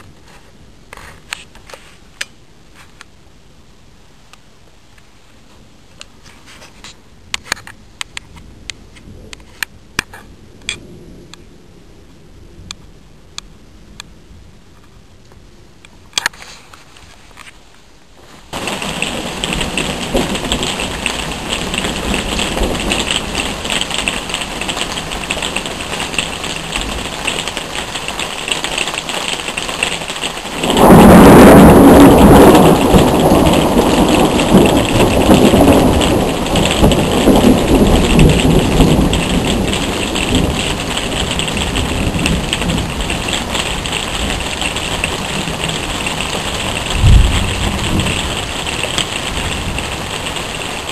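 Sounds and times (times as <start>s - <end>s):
steady rain hiss: 0.0s - 50.9s
thunder clap rumbling: 18.5s - 50.9s.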